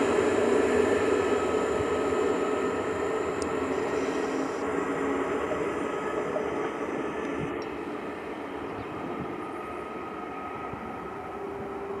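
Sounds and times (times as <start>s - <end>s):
faint hum: 0.0s - 9.4s
train rushing noise: 0.0s - 12.0s.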